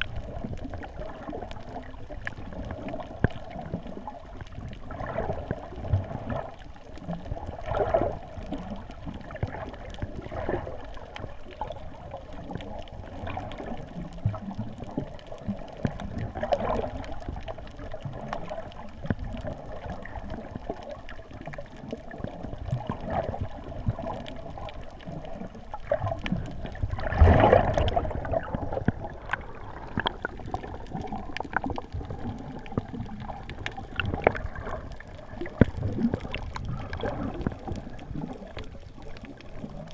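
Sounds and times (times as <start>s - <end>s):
muffled rumble: 26.2s - 39.7s.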